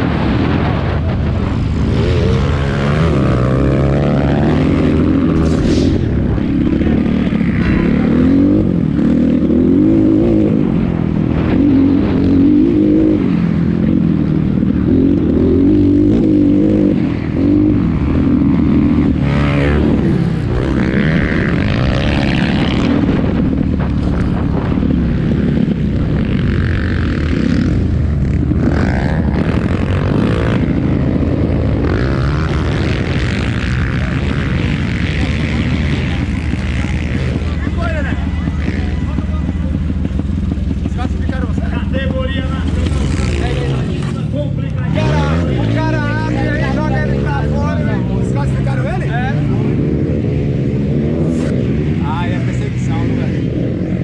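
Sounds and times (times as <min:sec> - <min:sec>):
motocross engines revving: 0:00.0 - 0:54.0.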